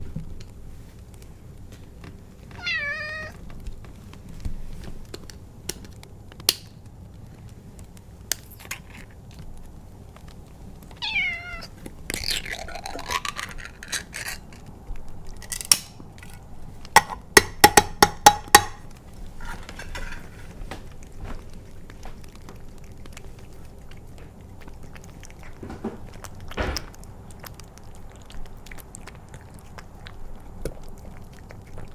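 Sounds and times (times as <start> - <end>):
cat meowing: 2.5 - 3.4, 11.0 - 11.8.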